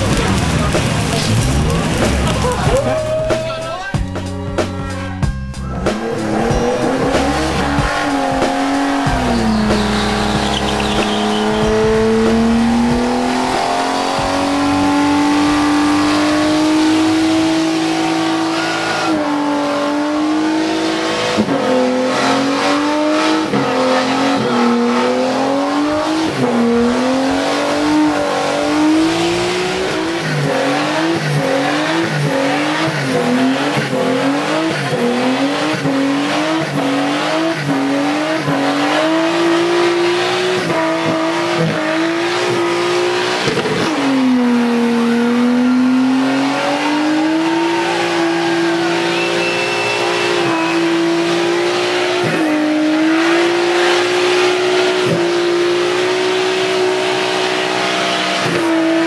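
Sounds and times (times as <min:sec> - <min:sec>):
car engine revving: 0:00.0 - 0:59.0
tyres squealing: 0:04.7 - 0:12.4.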